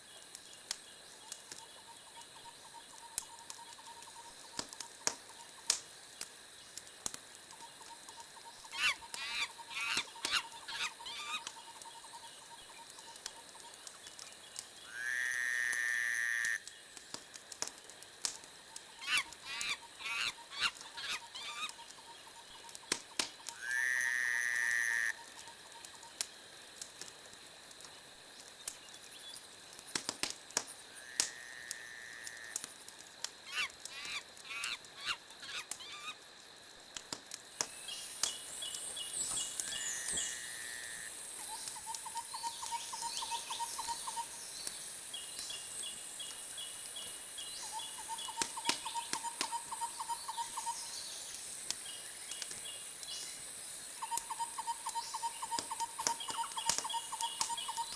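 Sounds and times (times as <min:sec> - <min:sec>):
wood fire crackling and popping: 0:00.0 - 0:10.7, 0:11.4 - 0:14.8, 0:15.6 - 0:23.6, 0:25.1 - 0:40.4, 0:41.1 - 0:57.9.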